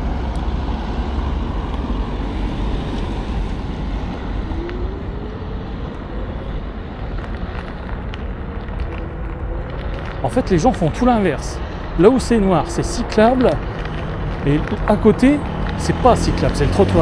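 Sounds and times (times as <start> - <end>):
faint whine rising in pitch: 0.0 - 9.7
tyre and road rumble: 0.0 - 17.0
wind rushing over microphone: 0.0 - 17.0.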